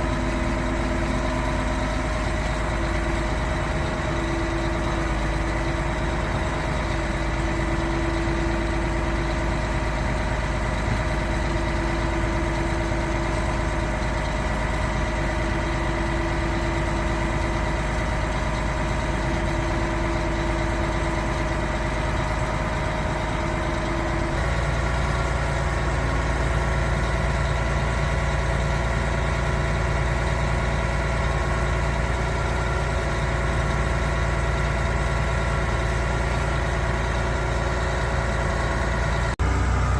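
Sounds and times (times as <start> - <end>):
hydraulic whine: 0.0 - 27.6, 32.2 - 39.9
diesel engine rumble: 0.0 - 39.9.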